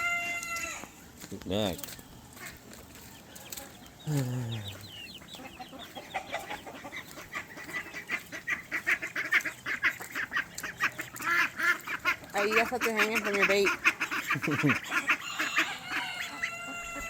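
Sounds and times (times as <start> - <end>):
low falling chicken call: 0.0 - 0.9
chickens clucking: 0.0 - 17.0.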